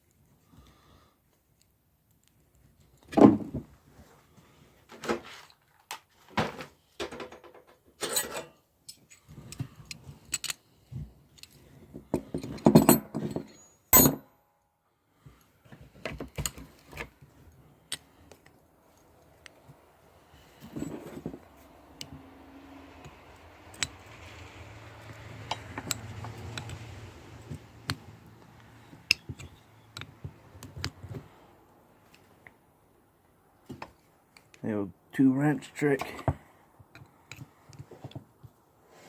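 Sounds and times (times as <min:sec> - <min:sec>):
metal tools clinking: 0:08.0 - 0:09.2, 0:12.2 - 0:14.3.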